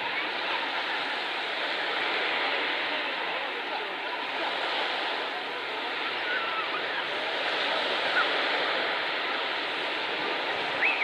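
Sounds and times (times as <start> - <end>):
faint calls of voices: 0.0 - 11.0
sea surf washing onto beach: 0.0 - 11.0.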